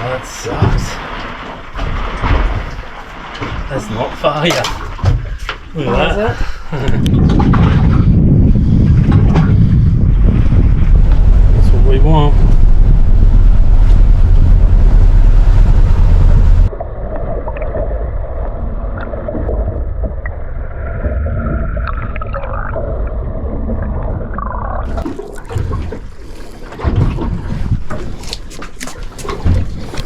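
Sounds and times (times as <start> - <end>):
water sloshing and gurgling: 0.0 - 30.0
wind rumbling on microphone: 4.9 - 28.5.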